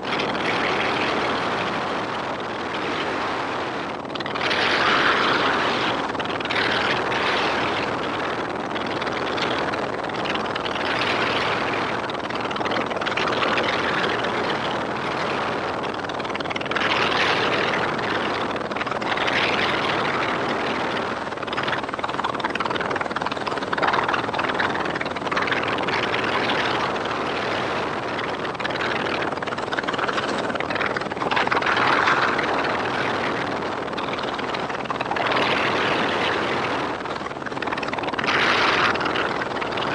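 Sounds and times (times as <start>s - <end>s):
helicopter rotor and engine: 18.1s - 39.9s.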